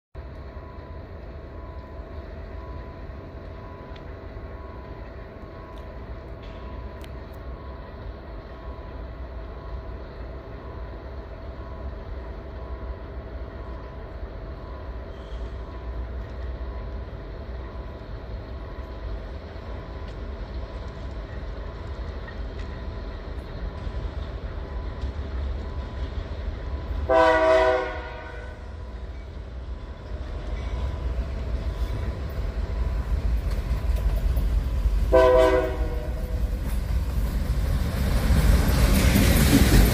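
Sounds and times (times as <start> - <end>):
train low rumble: 0.1 - 39.9
distant locomotive engine drone: 0.2 - 39.9
locomotive horn: 27.0 - 28.8, 35.1 - 36.5.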